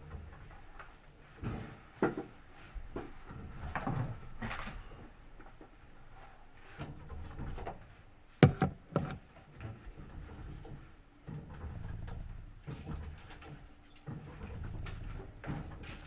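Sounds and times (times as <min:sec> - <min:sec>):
loud knocks: 0:08.4 - 0:09.2
washing machine humming: 0:08.4 - 0:09.4.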